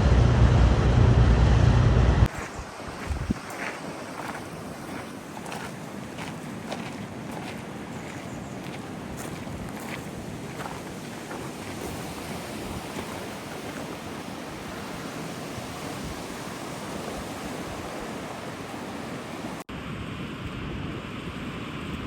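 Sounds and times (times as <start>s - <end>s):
wind on microphone: 0.0s - 19.6s
water rushing: 2.2s - 22.0s.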